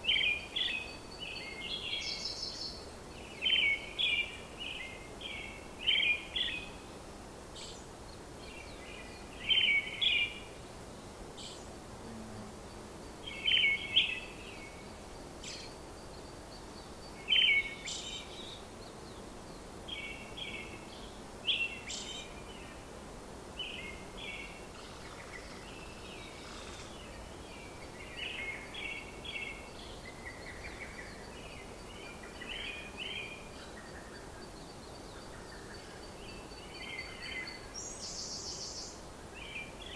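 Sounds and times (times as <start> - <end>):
steady background hiss: 0.0 - 39.9
birds chirping: 11.4 - 22.9.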